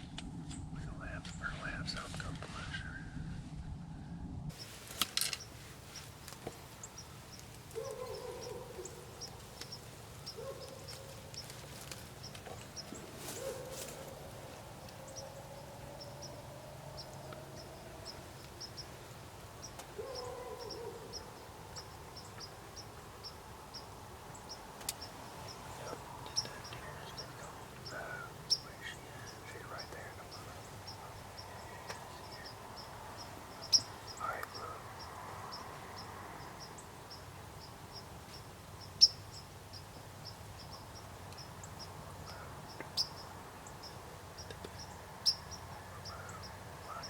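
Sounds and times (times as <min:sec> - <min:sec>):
birds chipping: 0:04.5 - 0:47.0
lower bird calls: 0:04.5 - 0:47.0
sharp clicks: 0:24.8 - 0:25.1.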